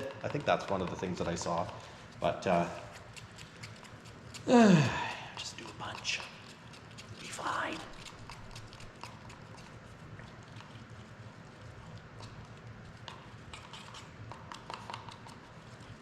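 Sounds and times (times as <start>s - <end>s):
stirrer tapping container: 0.0s - 4.2s, 13.0s - 15.5s.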